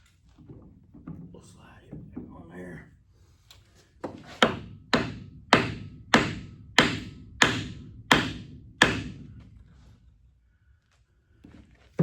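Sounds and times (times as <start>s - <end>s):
hammer blows ringing on metal: 4.4s - 9.3s.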